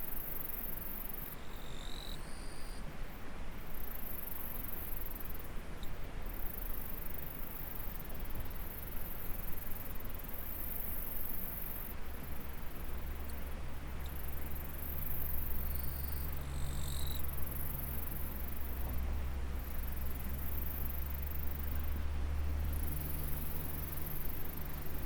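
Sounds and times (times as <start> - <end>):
insects chirring: 0.1 - 2.8, 10.6 - 18.8.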